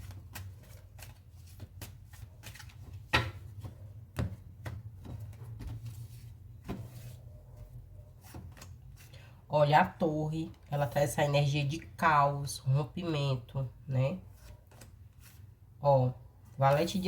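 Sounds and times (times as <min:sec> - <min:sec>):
cards knocking on table: 0:03.1 - 0:05.8.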